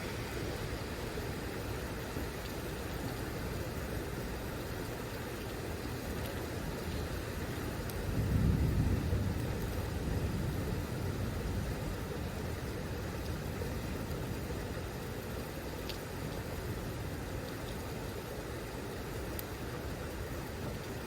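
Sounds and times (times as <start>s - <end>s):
steady hiss: 0.0s - 21.0s
thunder rumbling: 8.0s - 14.8s.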